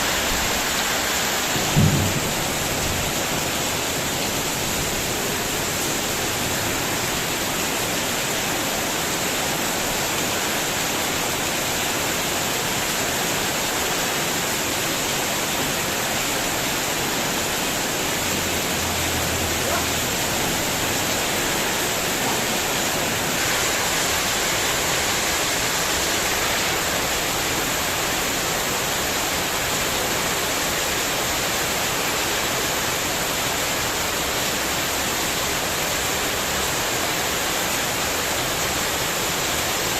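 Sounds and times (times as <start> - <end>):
heavy rain on metal roof: 0.0 - 39.9.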